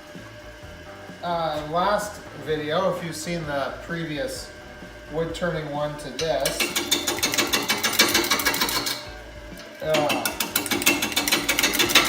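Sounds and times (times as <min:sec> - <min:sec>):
lathe tool ticking on wood: 0:01.5 - 0:12.0.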